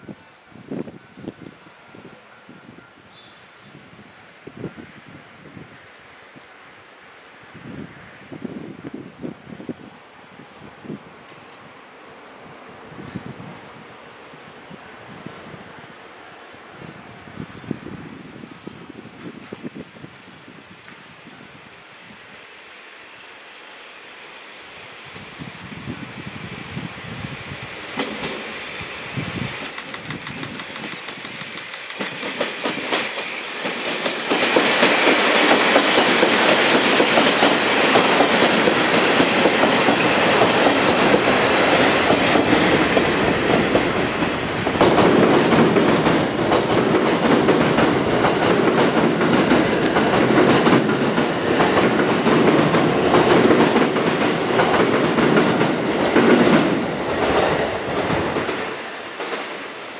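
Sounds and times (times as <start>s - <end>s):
train passing close by: 0.0s - 59.9s
wheels clattering over rail joints: 29.6s - 33.2s.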